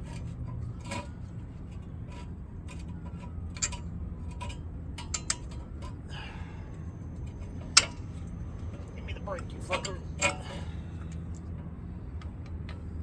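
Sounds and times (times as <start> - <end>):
steady low hum: 0.0 - 13.0
metal tools clinking: 7.0 - 11.2.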